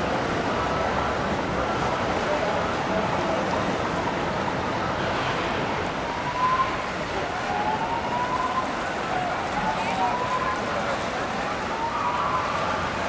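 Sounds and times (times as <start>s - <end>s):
siren wailing: 11.6s - 13.0s.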